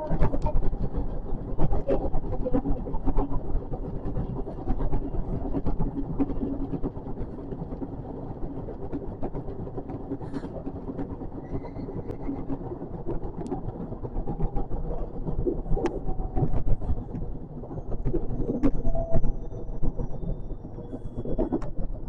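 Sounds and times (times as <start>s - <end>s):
electric train rumbling: 0.0s - 22.0s.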